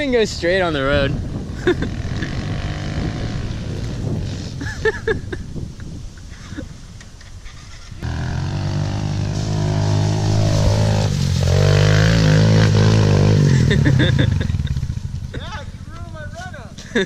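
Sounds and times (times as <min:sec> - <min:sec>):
small motorcycle engine revving: 0:01.8 - 0:04.6, 0:07.6 - 0:15.3.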